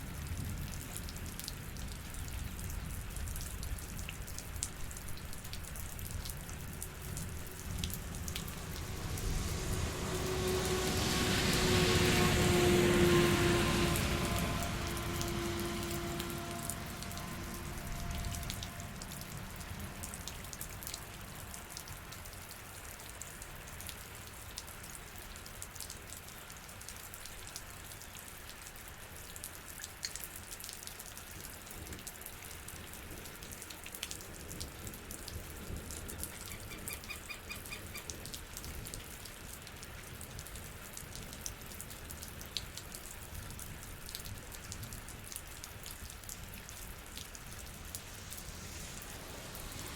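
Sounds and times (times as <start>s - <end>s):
rain pattering: 0.0s - 49.9s
raindrops ticking: 0.2s - 13.0s, 13.6s - 27.7s.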